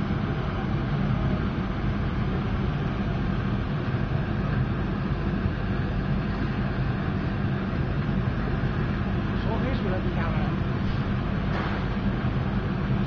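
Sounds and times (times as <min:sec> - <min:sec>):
furnace mechanical drone: 0:00.0 - 0:13.0.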